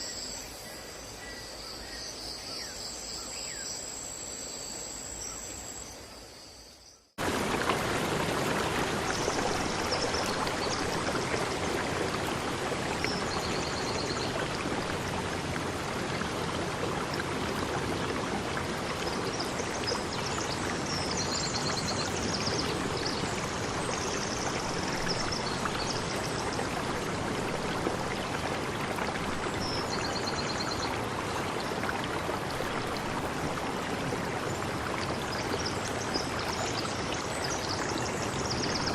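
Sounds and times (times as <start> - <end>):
crickets chirping: 0.0 - 7.1
stream water rushing: 7.2 - 38.9.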